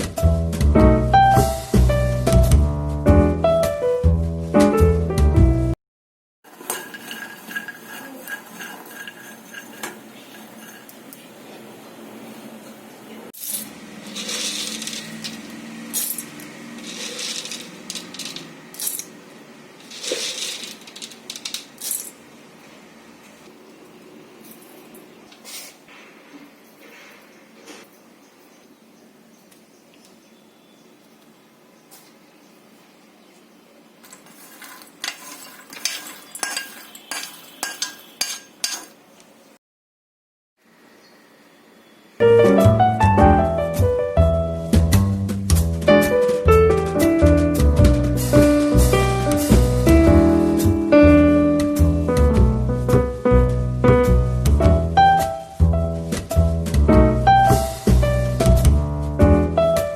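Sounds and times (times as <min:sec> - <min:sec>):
metal spoon scraping steel pot: 0:06.5 - 0:11.2, 0:13.4 - 0:19.1, 0:34.0 - 0:39.0.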